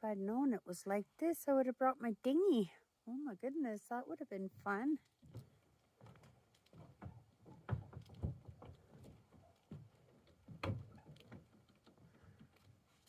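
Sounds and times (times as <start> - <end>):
soft thumps and knocks: 4.5 - 12.9.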